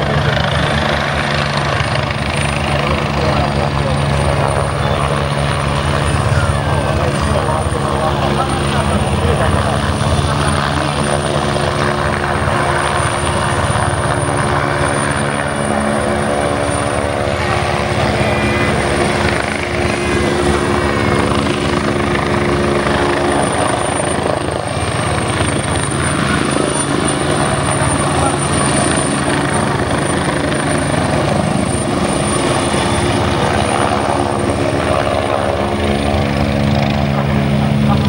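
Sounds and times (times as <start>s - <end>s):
helicopter rotor and engine hum: 0.0s - 38.0s
thin high whine: 15.6s - 21.6s.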